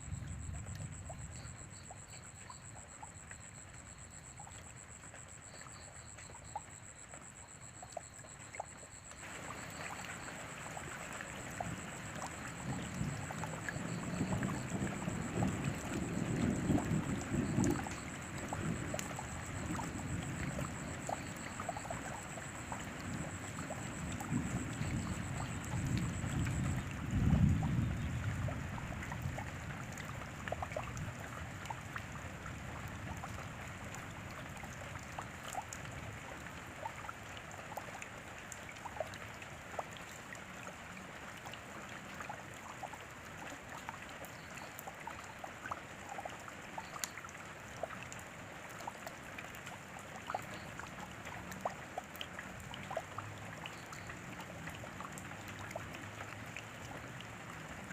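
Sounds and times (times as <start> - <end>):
raindrops clicking close by: 0.0 - 57.9
steady rain falling: 0.0 - 57.9.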